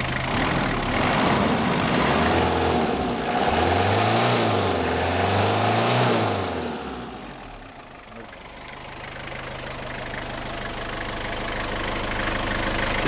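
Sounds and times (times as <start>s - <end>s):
diesel engine revving: 0.0s - 7.7s.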